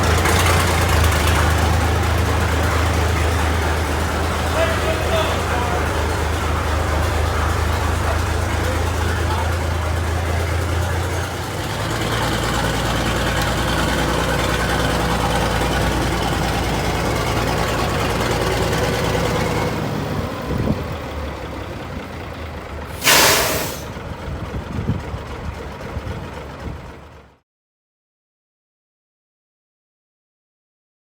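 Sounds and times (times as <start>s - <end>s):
heavy truck engine running: 0.0s - 27.4s
air brake hiss: 22.9s - 24.0s.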